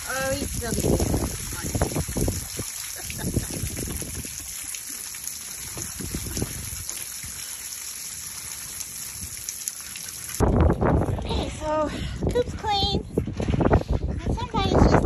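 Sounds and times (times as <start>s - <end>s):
water trickling from hose: 0.0s - 11.4s.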